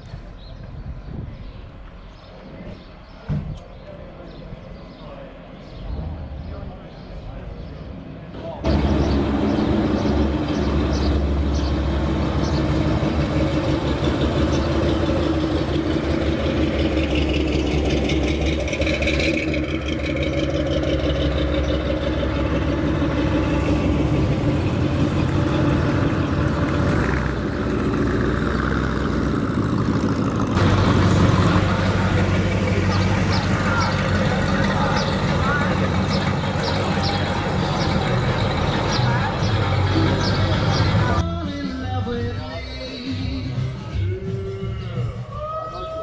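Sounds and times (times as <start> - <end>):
car engine idling: 8.6 - 41.2.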